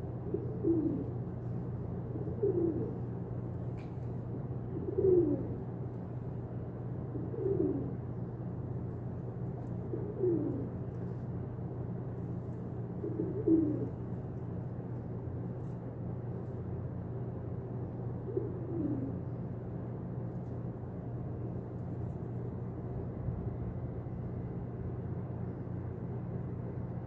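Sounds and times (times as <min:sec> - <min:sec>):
pigeon cooing: 0:00.0 - 0:01.2, 0:02.0 - 0:03.2, 0:04.6 - 0:05.7, 0:07.0 - 0:08.1, 0:09.8 - 0:10.9, 0:12.9 - 0:14.0, 0:18.2 - 0:19.3
steady low hum: 0:00.0 - 0:27.0.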